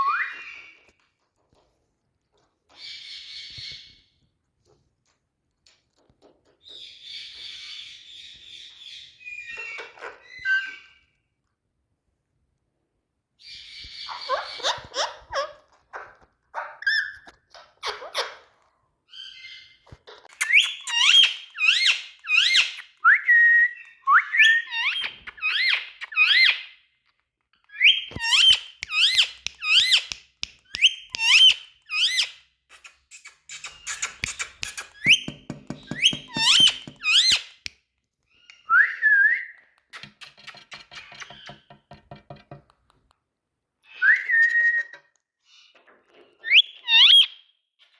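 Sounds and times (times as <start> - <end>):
parrot calling: 31.1 - 37.5.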